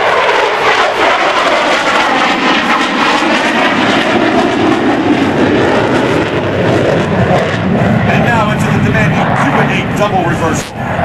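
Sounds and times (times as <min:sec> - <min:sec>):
fighter jet engines roaring: 0:00.0 - 0:11.0.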